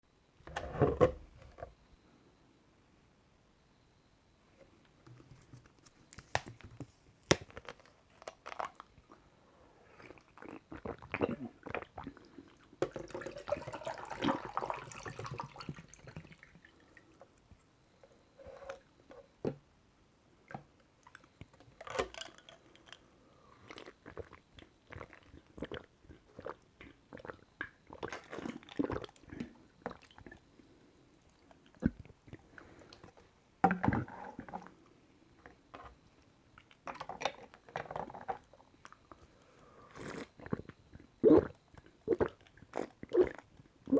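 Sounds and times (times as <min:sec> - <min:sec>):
gulping and swallowing: 0:10.0 - 0:12.7, 0:23.7 - 0:30.4, 0:39.9 - 0:43.9.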